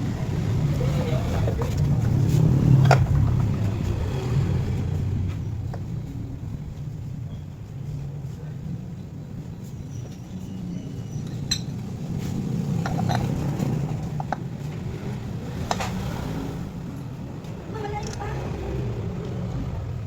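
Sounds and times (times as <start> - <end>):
low motor rumble: 0.0 - 20.0
metal tools clinking: 11.0 - 14.4.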